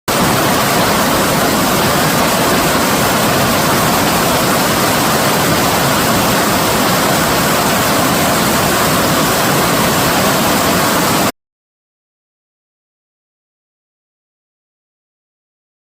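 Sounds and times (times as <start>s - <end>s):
stream rushing over rocks: 0.1s - 11.3s.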